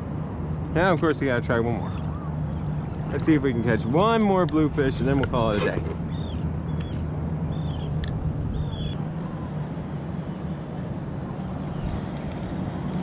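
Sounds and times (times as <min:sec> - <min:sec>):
steady low rumble: 0:00.0 - 0:13.0
birds calling: 0:01.7 - 0:04.2, 0:04.8 - 0:09.0.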